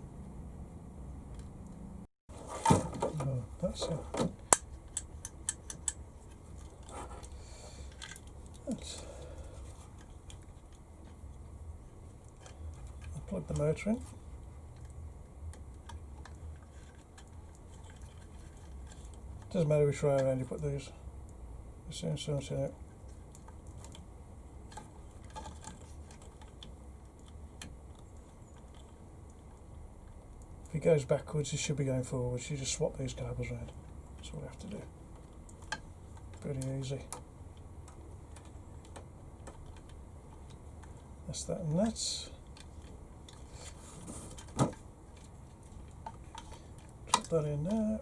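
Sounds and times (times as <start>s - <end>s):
small parts clicking and tapping: 3.6s - 20.6s, 22.8s - 30.7s, 33.7s - 47.9s
plastic parts clicking: 3.8s - 8.8s, 41.8s - 47.8s.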